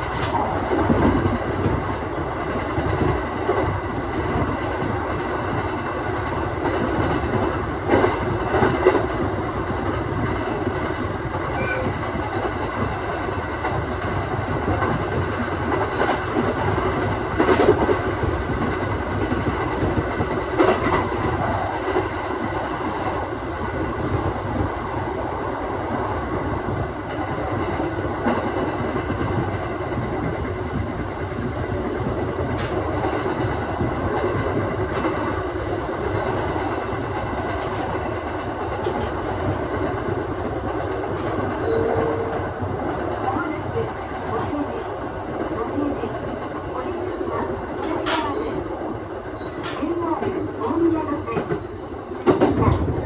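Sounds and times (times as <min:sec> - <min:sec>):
clacks over rail joints: 0:00.0 - 0:22.1, 0:36.0 - 0:44.5, 0:51.2 - 0:53.0
train wheels rumbling on rail: 0:00.0 - 0:53.0.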